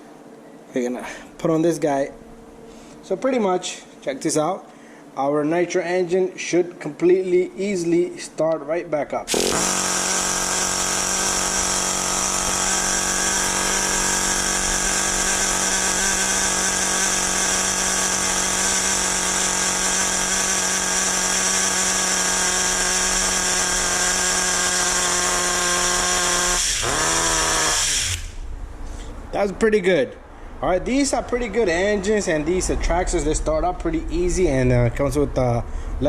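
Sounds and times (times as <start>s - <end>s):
small nitro engine buzzing: 9.3s - 28.4s.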